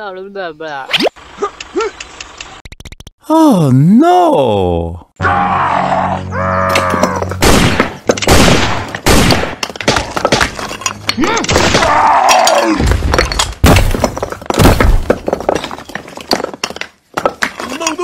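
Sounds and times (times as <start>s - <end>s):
crashing and breaking impacts: 6.7s - 18.0s.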